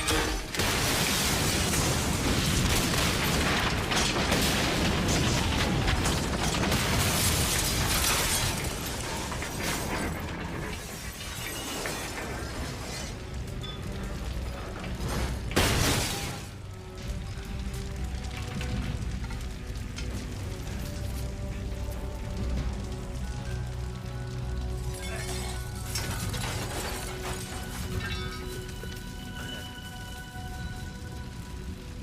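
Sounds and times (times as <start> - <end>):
shattering debris: 0.0 - 32.0.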